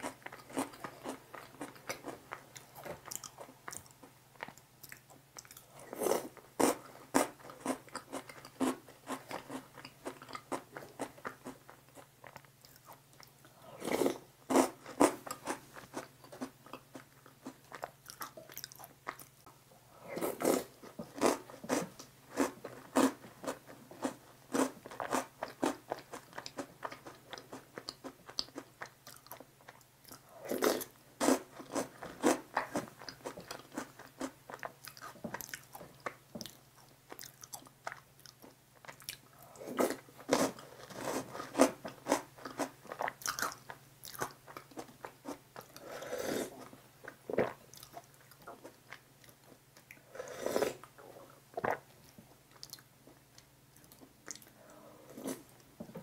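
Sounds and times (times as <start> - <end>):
chewing and crunching candy: 0.0 - 19.6, 20.2 - 46.0, 46.6 - 50.1
faint steady hum: 0.0 - 56.0.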